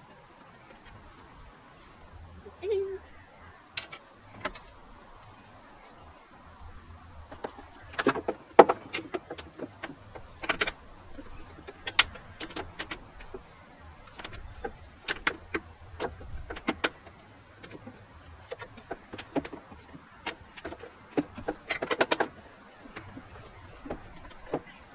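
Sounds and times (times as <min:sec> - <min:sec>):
hand tools clicking and knocking: 0:07.3 - 0:24.9.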